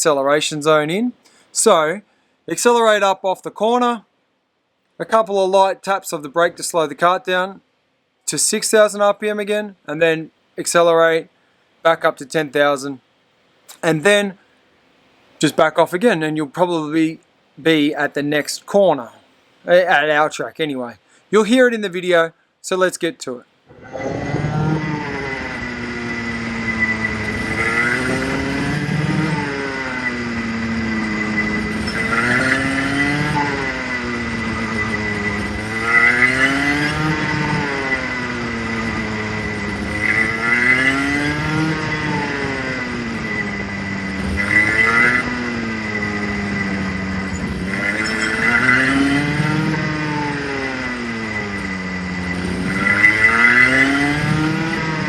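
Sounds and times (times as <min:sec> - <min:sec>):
steady high tone: 0:23.7 - 0:53.8
go-kart engine revving: 0:23.7 - 0:55.0.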